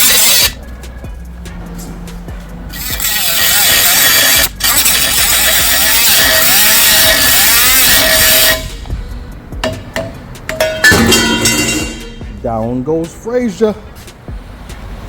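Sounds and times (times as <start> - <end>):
reciprocating saw cutting metal: 0.0 - 0.6, 2.7 - 8.9.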